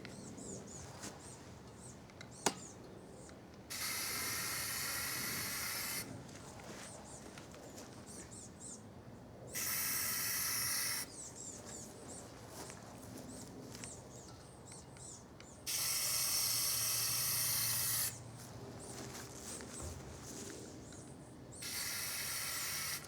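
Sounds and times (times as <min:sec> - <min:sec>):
aerosol spray can spraying: 0:03.7 - 0:06.0, 0:09.6 - 0:11.0, 0:15.7 - 0:18.1, 0:21.6 - 0:23.0.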